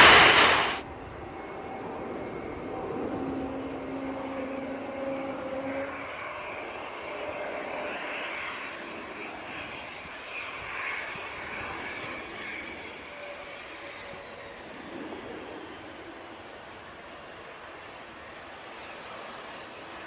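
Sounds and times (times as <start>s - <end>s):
jet engine rushing: 0.0s - 0.8s
low hum: 0.0s - 0.8s.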